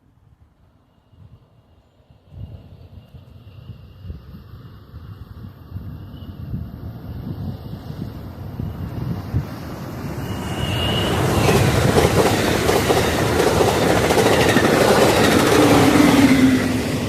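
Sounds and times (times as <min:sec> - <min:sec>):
high squeal: 0:07.9 - 0:12.1
wheels clacking over rail joints: 0:10.9 - 0:17.0.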